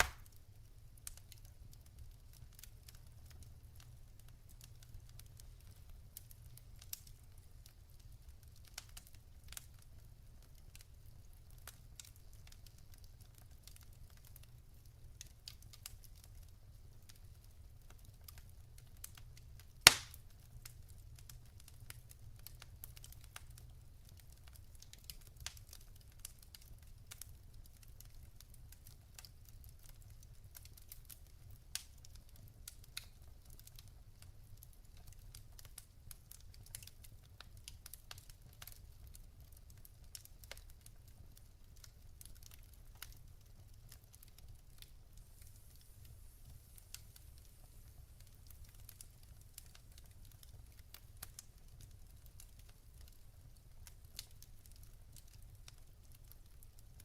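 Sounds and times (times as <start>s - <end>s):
loud pop of burning log: 0.0s - 0.3s, 19.8s - 20.2s
logs burning and crackling: 0.0s - 57.0s.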